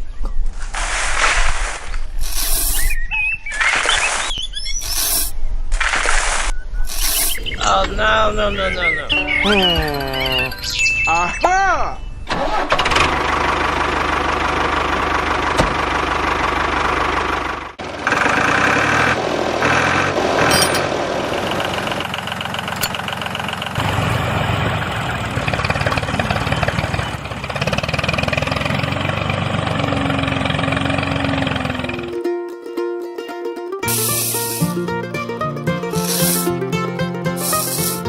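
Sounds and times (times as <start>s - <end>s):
vehicle engine running: 12.8s - 32.2s.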